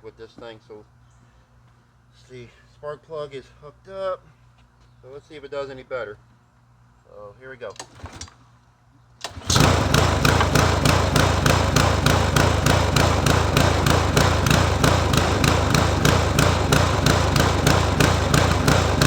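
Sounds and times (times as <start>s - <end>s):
lawn mower engine running: 9.2s - 19.0s.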